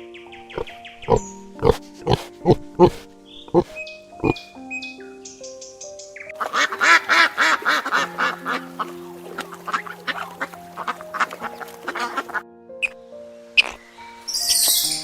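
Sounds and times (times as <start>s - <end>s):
background music: 0.0s - 15.0s
duck quacking: 6.4s - 12.4s.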